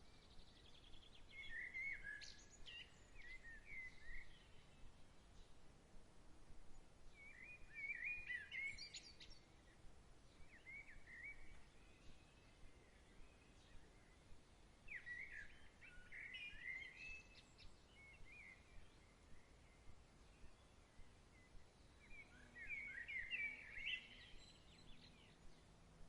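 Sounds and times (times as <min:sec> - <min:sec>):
faint outdoor hiss: 0:00.0 - 0:26.0.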